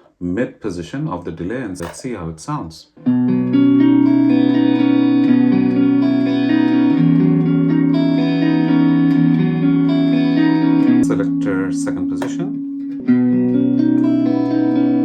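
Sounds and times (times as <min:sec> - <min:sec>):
electric guitar with delay: 0:03.0 - 0:15.0.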